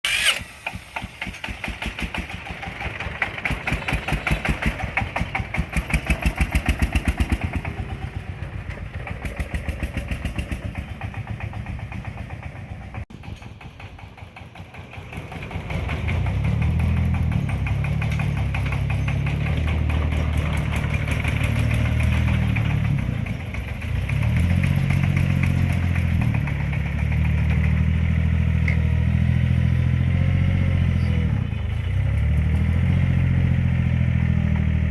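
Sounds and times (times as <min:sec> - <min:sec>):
fast engine beat: 0:00.0 - 0:28.4.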